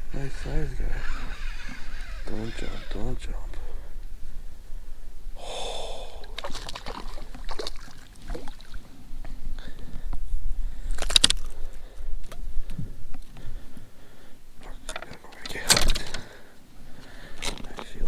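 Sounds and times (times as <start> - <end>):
fish splashing in water: 6.1 - 8.9
handling knocks and clicks: 14.8 - 16.4.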